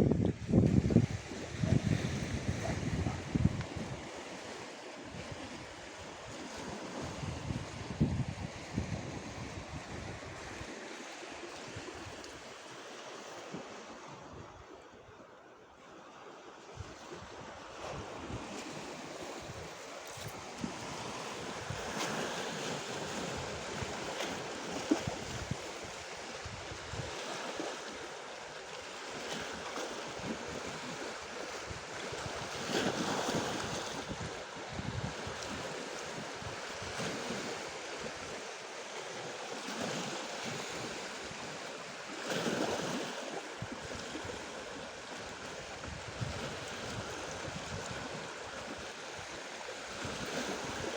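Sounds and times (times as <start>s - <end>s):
wind gusting on microphone: 0.0s - 4.2s, 5.1s - 10.8s, 33.4s - 35.7s, 45.6s - 48.3s
waves washing against shore: 0.0s - 15.2s, 15.9s - 50.9s
breaking water surges: 17.9s - 50.9s.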